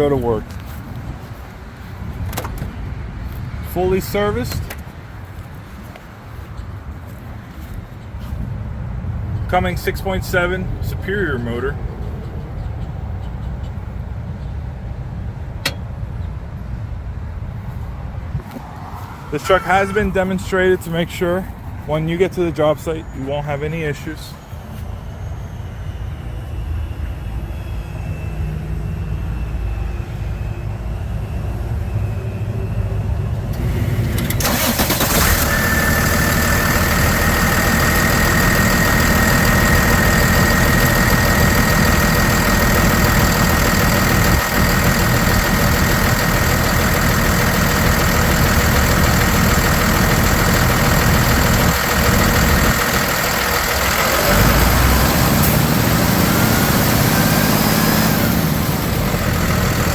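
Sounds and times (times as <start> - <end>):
diesel truck engine running: 0.0 - 14.2, 15.0 - 59.9
steady high whine: 18.5 - 55.5.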